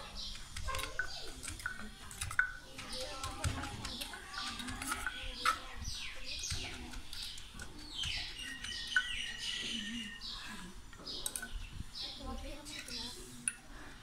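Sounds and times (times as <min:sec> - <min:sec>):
birds chirping: 0:00.0 - 0:14.0
wooden pestle pounding in mortar: 0:00.3 - 0:09.3.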